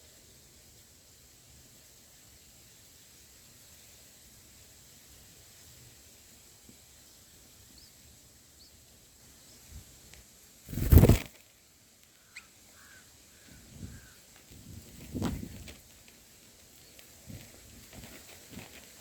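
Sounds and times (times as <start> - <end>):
bird wings flapping: 10.7 - 11.5, 14.7 - 19.0.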